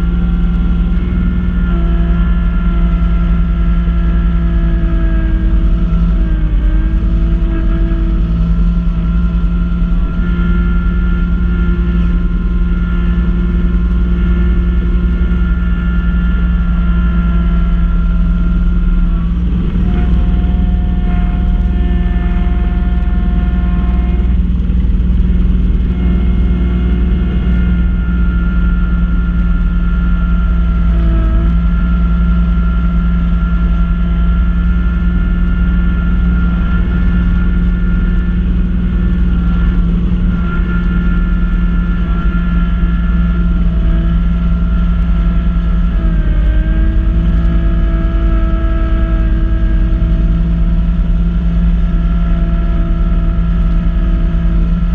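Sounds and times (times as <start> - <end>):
tractor diesel engine running: 0.0 - 54.9
whining tones: 0.0 - 54.9.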